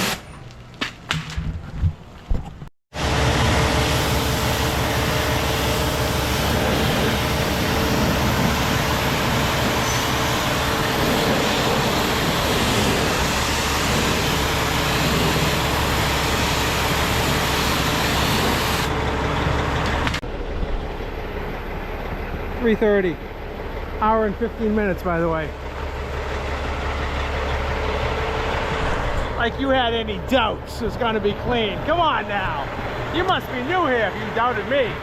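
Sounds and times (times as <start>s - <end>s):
diesel truck low hum: 1.5s - 35.0s
loud hiss: 3.4s - 18.9s.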